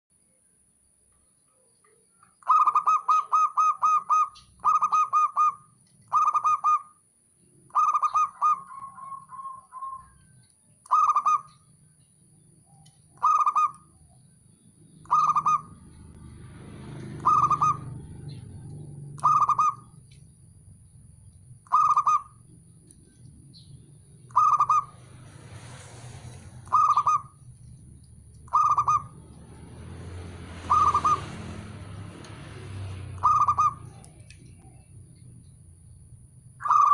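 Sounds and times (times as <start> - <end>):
dove cooing: 2.4 - 6.9, 7.7 - 11.6, 12.8 - 14.1, 15.0 - 16.2, 17.0 - 20.0, 21.6 - 22.5, 23.6 - 25.1, 26.6 - 27.4, 28.5 - 29.4, 30.4 - 34.9, 36.6 - 36.9.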